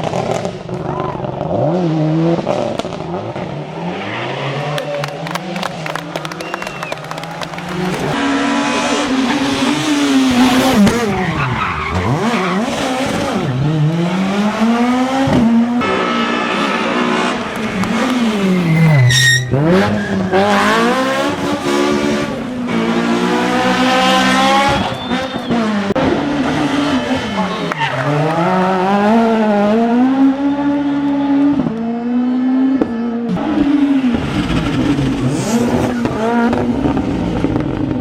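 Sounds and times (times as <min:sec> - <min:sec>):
rally car engines revving: 0:00.0 - 0:38.0
tyre noise: 0:16.5 - 0:28.8.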